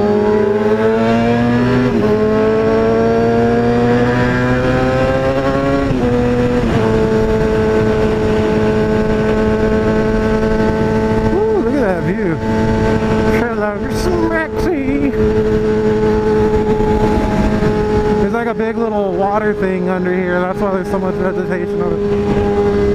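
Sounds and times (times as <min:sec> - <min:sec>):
motorcycle engine accelerating: 0:00.0 - 0:22.9.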